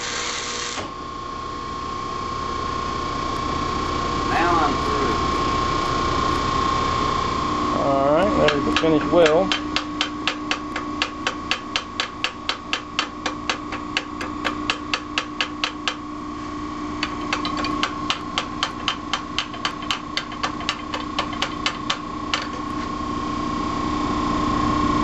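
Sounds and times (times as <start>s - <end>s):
hammer striking metal: 8.4s - 16.0s, 17.0s - 22.9s.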